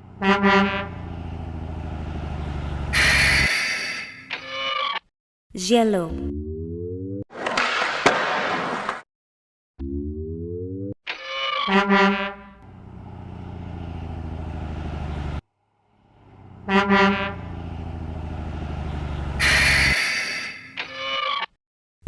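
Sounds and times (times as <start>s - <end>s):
truck horn honking: 0.0s - 1.5s, 2.4s - 4.2s, 11.7s - 12.8s, 16.3s - 17.8s, 19.1s - 20.7s
engine hum: 0.0s - 3.5s, 12.3s - 20.3s.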